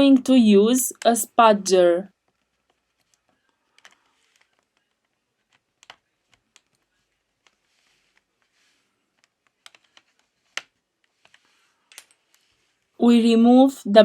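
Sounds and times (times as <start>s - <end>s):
faint scraping: 6.1s - 13.0s.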